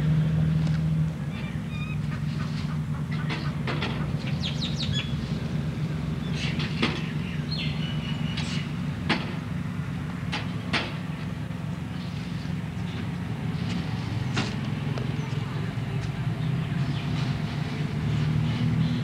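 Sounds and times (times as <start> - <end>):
birds chirping and calling: 1.2 - 5.3, 6.2 - 8.8.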